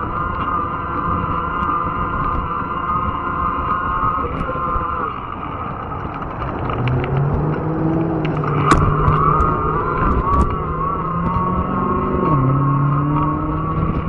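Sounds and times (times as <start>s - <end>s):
electric motor whine: 0.0s - 14.0s
rumble of tyres and wind: 0.0s - 14.0s
sharp clicks and knocks: 5.3s - 14.0s.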